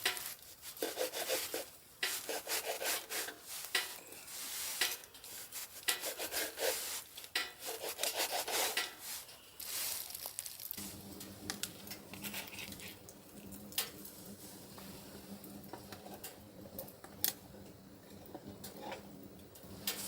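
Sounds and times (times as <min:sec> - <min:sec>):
rubbing and scraping on wood: 0:00.0 - 0:10.3
steady low hum: 0:10.8 - 0:20.0.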